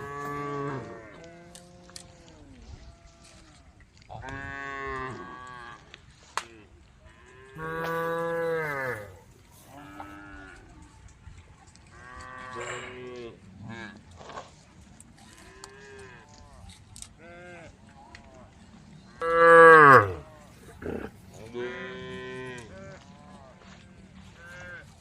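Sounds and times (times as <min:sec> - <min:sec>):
cows mooing: 0:00.0 - 0:02.0, 0:07.3 - 0:10.6, 0:19.2 - 0:23.4.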